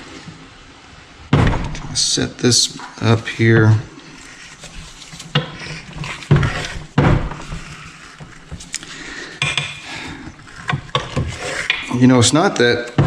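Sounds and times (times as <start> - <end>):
metal scraping and rubbing: 2.7 - 13.0
metal tools clunking: 4.6 - 13.0.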